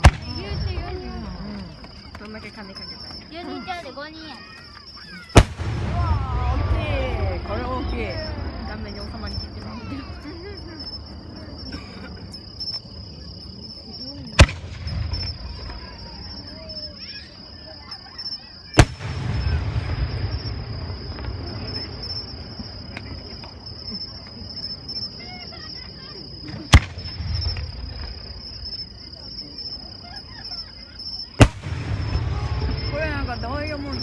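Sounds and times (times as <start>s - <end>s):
fireworks bangs with rumble: 0.0s - 2.2s, 5.4s - 16.8s, 18.8s - 25.0s, 26.3s - 28.9s, 31.4s - 34.0s
insects chirping: 0.0s - 34.0s.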